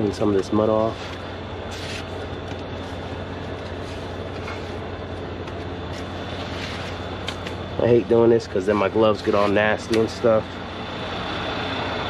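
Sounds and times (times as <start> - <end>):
heavy diesel engine idling: 0.0 - 12.0
scraping rub: 1.0 - 2.1, 5.9 - 7.0.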